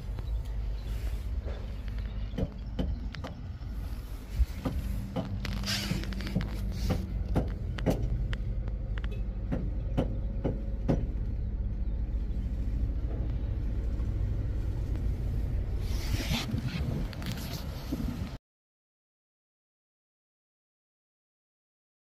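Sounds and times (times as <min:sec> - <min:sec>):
engine rumbling: 0:00.0 - 0:18.4
sharp clicks and knocks: 0:01.4 - 0:03.5, 0:04.6 - 0:11.4.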